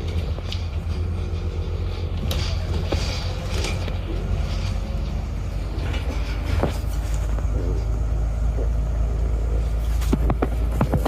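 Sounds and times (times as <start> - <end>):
bodywork rattling: 0.0 - 7.6, 9.8 - 11.0
bus engine and road rumble: 0.0 - 11.0.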